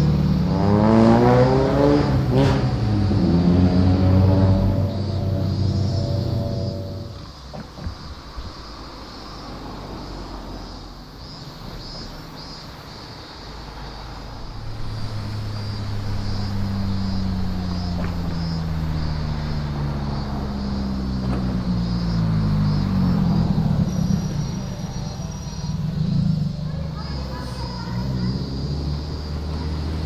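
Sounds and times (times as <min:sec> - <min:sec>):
car engine running: 0:00.0 - 0:07.9, 0:13.9 - 0:30.0.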